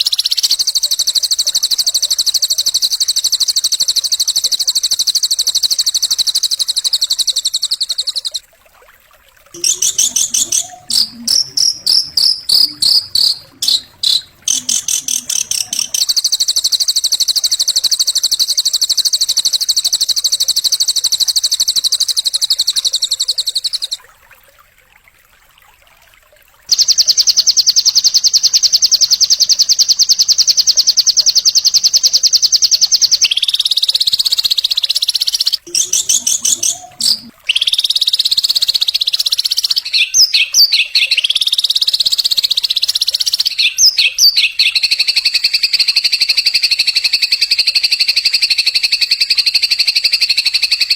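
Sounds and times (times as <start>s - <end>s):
songbird chirps: 0.0s - 8.5s, 9.6s - 24.0s, 26.7s - 50.9s
high-pitched buzzing bird trill: 9.6s - 20.6s, 26.7s - 50.9s.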